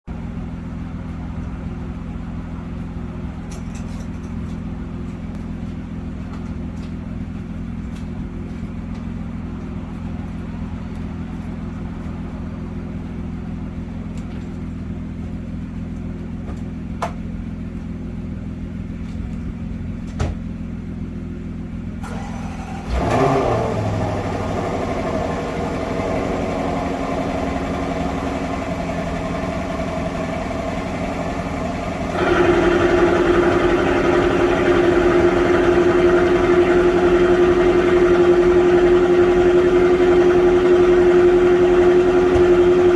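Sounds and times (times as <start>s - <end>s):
car engine starting and idling: 0.1s - 42.9s
low hum: 23.7s - 42.9s.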